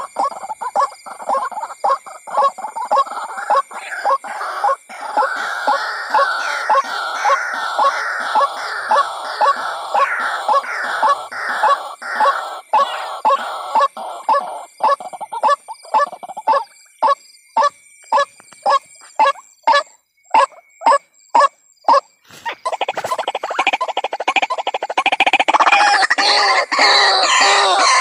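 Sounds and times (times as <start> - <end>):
bird harsh croaking calls: 0.0 - 28.0.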